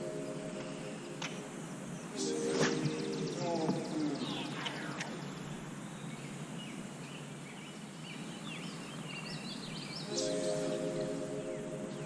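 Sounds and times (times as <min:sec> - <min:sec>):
steady multi-tone hum: 0:00.0 - 0:08.4
small birds chirping: 0:00.0 - 0:12.0
steady low background noise: 0:00.0 - 0:12.0.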